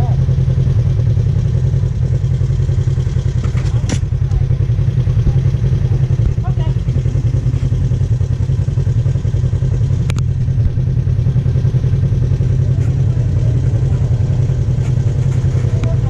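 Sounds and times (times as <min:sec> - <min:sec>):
vehicle engine at low revs: 0:00.0 - 0:16.0.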